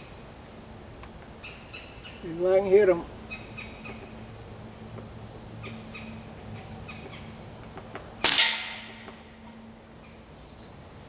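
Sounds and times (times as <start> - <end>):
air rifle shot: 8.2 - 9.2.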